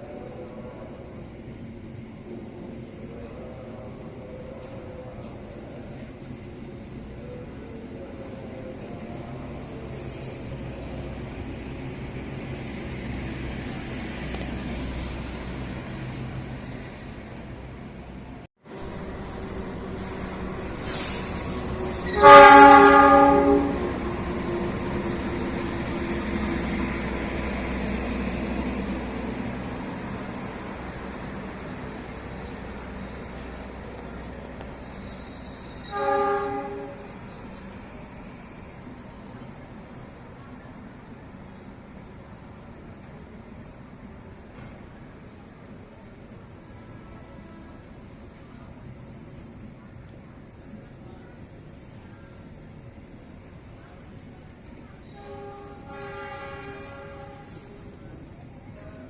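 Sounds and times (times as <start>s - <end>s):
running rail noise: 0.0s - 59.0s
train passing with rumble: 0.0s - 59.0s
traffic noise: 8.4s - 59.0s
train horn blast: 22.0s - 24.0s, 35.8s - 37.1s, 55.1s - 57.8s.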